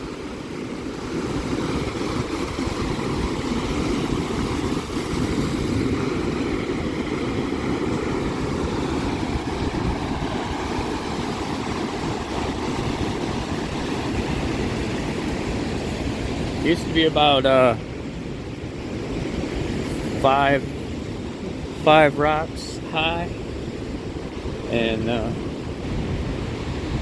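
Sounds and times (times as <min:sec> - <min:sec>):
waves breaking on shore: 0:00.0 - 0:27.0.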